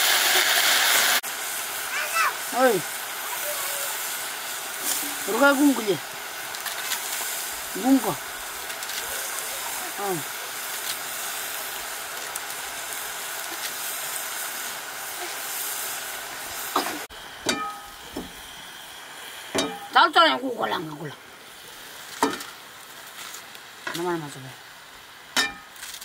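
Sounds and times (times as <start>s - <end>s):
vegetables sizzling in a wok: 0.0s - 26.0s
child calling out: 1.9s - 2.5s, 3.2s - 4.0s.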